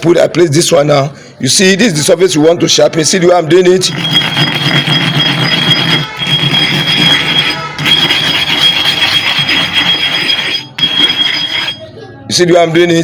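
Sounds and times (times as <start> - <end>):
stone grinding scrape on iron: 3.8 - 11.9
steady high-pitched tone: 3.9 - 11.8.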